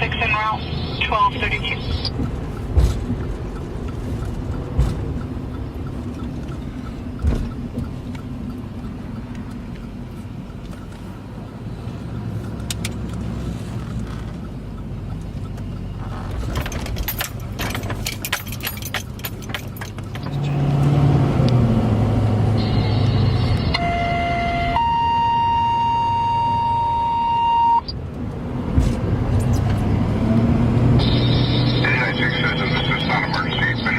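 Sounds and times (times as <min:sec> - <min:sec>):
diesel engine revving: 0:00.0 - 0:27.0, 0:27.9 - 0:33.9
steady warning tone: 0:22.5 - 0:28.0.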